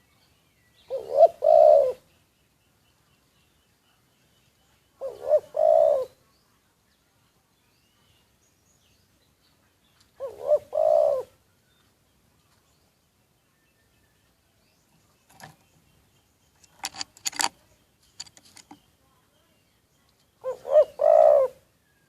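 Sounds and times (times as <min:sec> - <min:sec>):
dove cooing: 0:00.9 - 0:02.1, 0:05.0 - 0:06.2, 0:10.2 - 0:11.4, 0:20.4 - 0:21.7.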